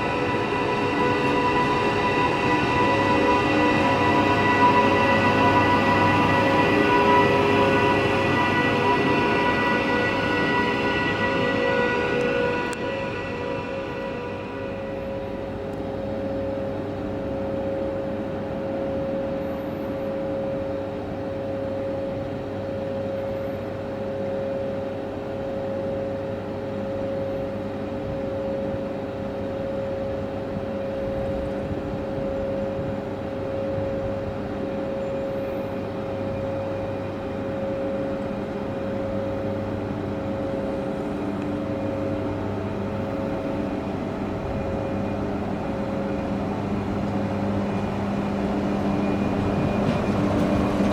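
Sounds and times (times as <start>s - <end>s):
train mechanical hum: 0.0s - 50.9s.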